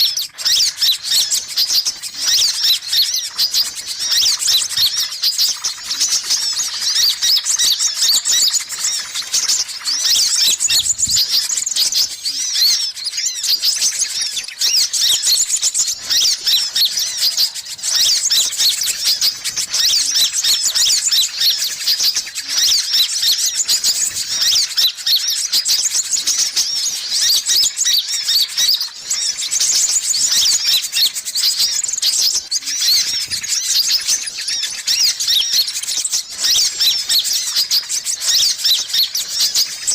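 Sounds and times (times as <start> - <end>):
sunbirds twittering and chirping: 0.0 - 39.9.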